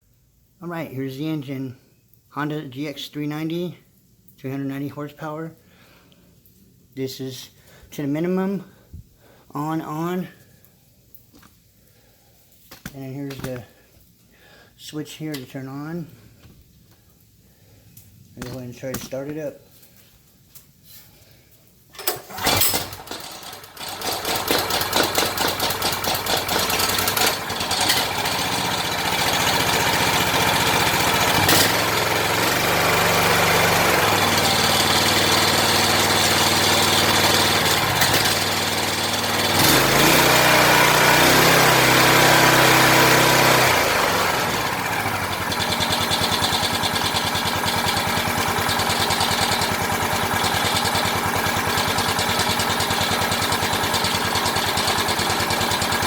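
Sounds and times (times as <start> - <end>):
pressure washer engine running: 22.0 - 56.0.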